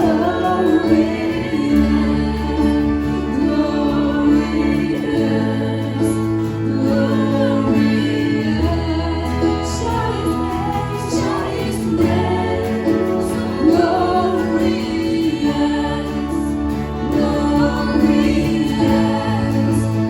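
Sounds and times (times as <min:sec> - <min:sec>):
voices singing worship music: 0:00.0 - 0:20.0.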